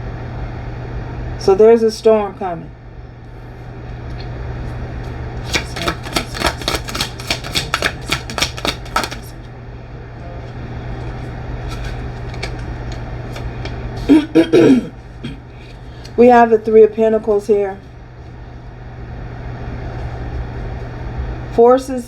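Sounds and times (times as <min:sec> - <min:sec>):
steady low hum: 0:00.0 - 0:22.0
cards being shuffled: 0:05.0 - 0:09.4, 0:11.0 - 0:14.2.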